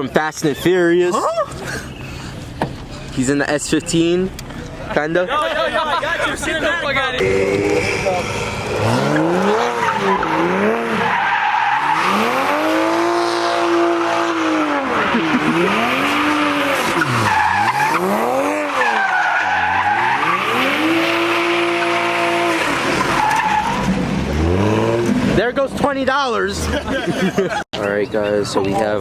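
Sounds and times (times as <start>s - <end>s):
tires squealing: 5.3s - 27.0s
car engine revving hard: 7.2s - 25.4s.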